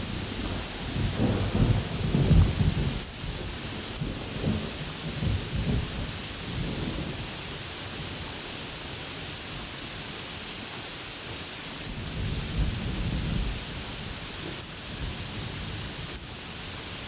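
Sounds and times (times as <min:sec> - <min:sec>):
thunder rumbling: 0:00.0 - 0:07.2
rain hissing: 0:00.0 - 0:09.8, 0:10.6 - 0:17.0.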